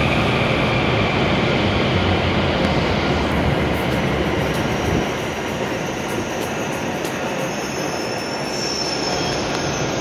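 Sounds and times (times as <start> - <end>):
train rumbling: 0.0 - 10.0
thin high squeal: 7.3 - 10.0.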